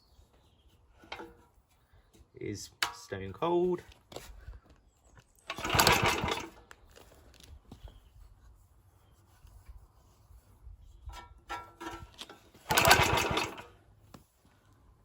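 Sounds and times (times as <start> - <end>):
recoil starter pull cranking engine: 5.5 - 6.7, 11.5 - 13.8.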